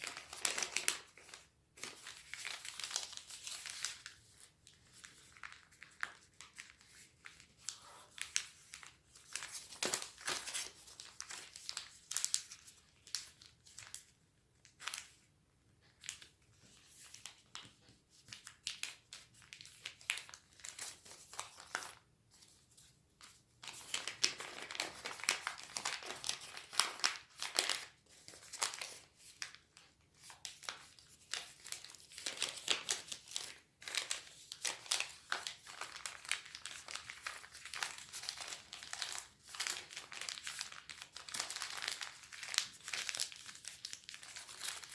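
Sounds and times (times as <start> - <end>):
paper rustling and crinkling: 0.0 - 15.2, 16.0 - 44.9.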